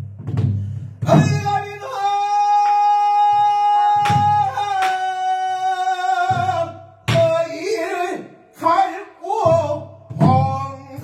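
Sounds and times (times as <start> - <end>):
drum strikes: 0.0 - 2.0, 3.2 - 5.0, 6.2 - 7.7, 9.4 - 11.0.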